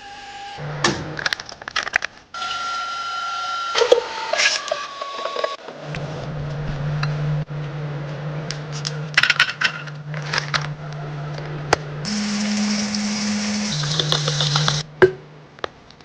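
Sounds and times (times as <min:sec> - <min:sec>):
low motor hum: 0:05.6 - 0:09.2, 0:09.8 - 0:15.6.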